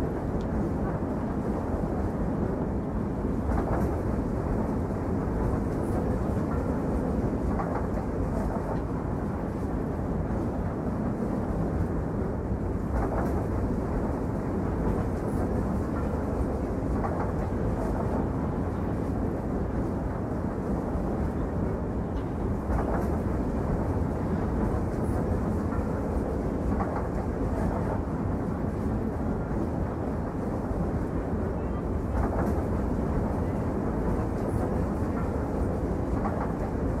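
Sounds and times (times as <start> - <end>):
train rumbling on rails: 0.0 - 37.0
faint rail joint clicks: 3.4 - 9.0, 22.1 - 28.0.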